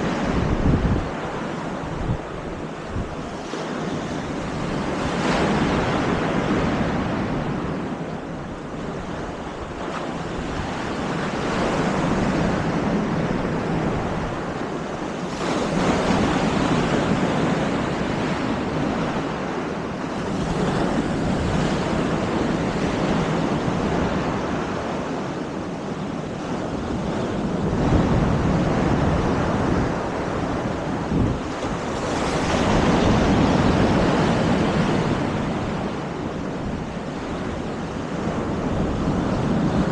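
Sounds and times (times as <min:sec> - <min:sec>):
wind buffeting microphone: 0:00.0 - 0:39.9
surf breaking on shore: 0:26.2 - 0:39.9.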